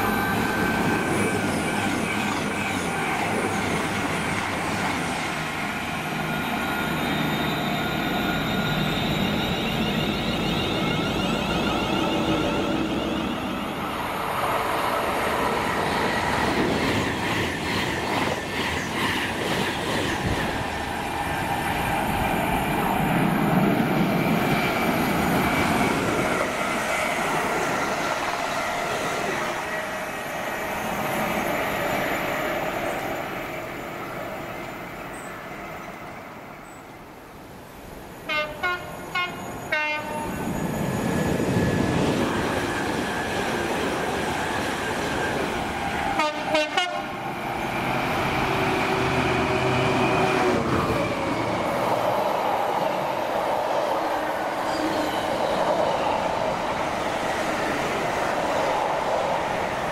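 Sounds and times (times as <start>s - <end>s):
train wheels rushing on rail: 0.0s - 37.0s, 37.8s - 59.9s
locomotive horn blasts: 38.3s - 40.3s, 46.2s - 47.1s.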